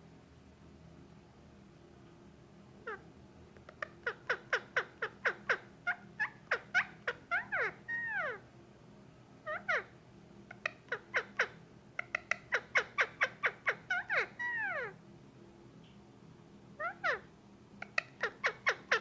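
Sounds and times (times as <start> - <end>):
parakeet calling: 2.8 - 3.0, 3.7 - 8.4, 9.4 - 9.9, 10.5 - 15.0, 16.8 - 19.0.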